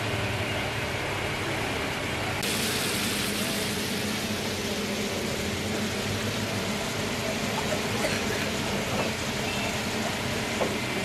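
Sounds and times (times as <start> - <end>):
street traffic hum: 0.0 - 11.0
meat sizzling on a griddle: 2.4 - 4.4.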